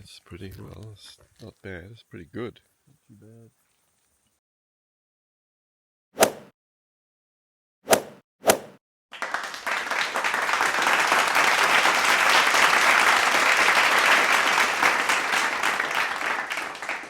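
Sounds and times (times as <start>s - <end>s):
crowd applause: 9.1s - 17.0s.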